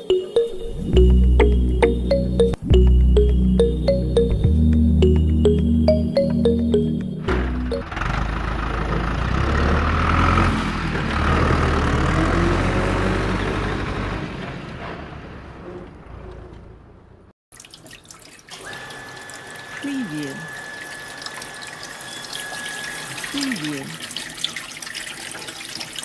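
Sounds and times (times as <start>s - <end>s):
water running and splashing: 17.5s - 26.0s
pump humming: 18.5s - 24.4s.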